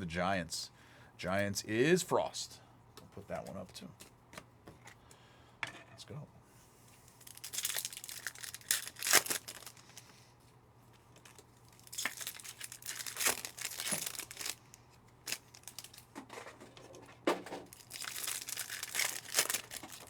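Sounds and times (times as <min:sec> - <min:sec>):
card pack wrapper tearing and crinkling: 0:07.1 - 0:10.1, 0:11.2 - 0:16.2, 0:17.6 - 0:20.0.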